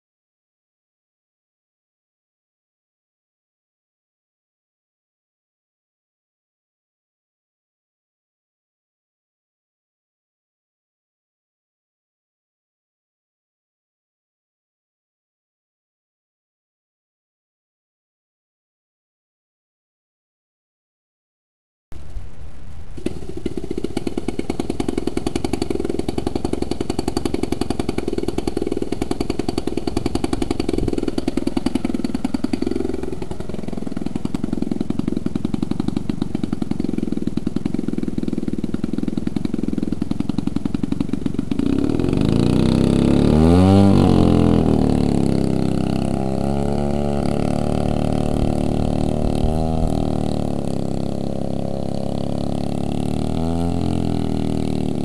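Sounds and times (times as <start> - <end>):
model airplane engine running: 23.0 - 55.0.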